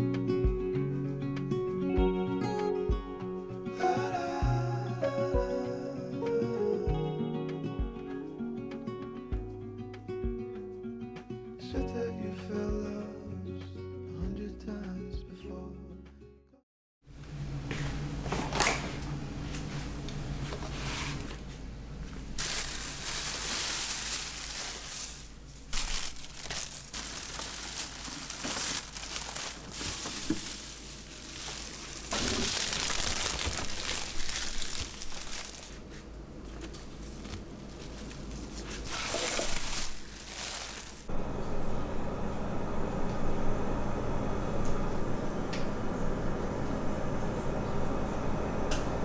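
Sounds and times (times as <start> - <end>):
packaging crinkling: 22.4 - 36.0, 36.6 - 41.1
steady low hum: 39.6 - 49.0.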